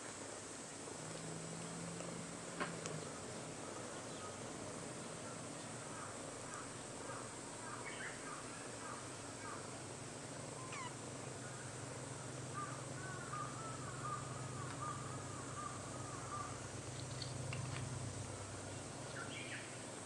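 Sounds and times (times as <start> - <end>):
kitten purring: 10.6 - 11.0.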